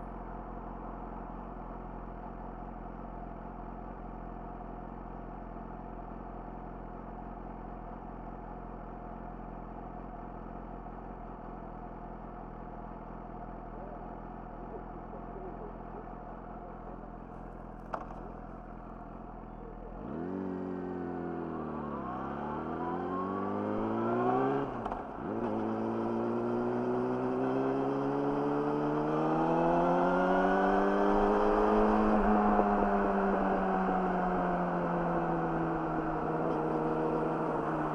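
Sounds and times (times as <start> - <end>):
motorcycle engine revving: 19.9 - 37.9.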